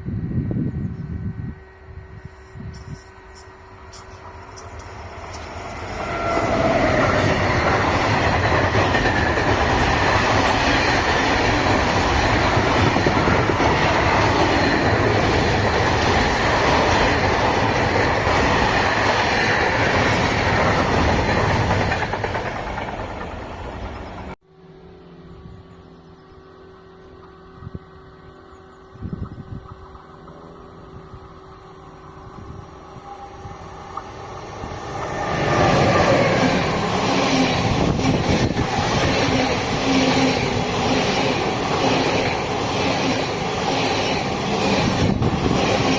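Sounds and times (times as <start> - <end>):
train wheels running over rails: 2.7 - 24.4, 33.8 - 45.9.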